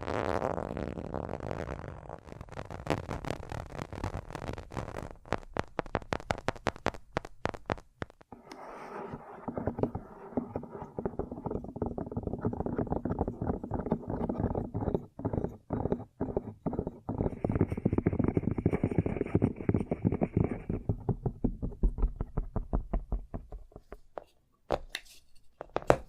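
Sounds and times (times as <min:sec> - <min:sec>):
rapid taps and clicks: 0:02.8 - 0:08.5, 0:09.5 - 0:24.1.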